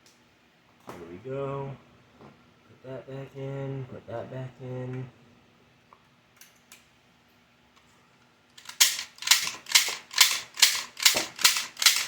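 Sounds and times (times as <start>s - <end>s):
toy foam dart shots: 8.6s - 12.0s.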